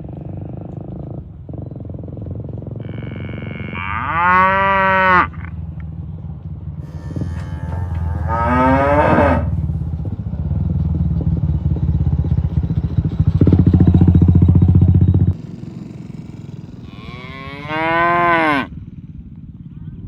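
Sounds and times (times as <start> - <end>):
low steady rumble: 0.0 - 15.4
cattle mooing: 2.8 - 5.6, 6.8 - 9.7, 16.8 - 18.7.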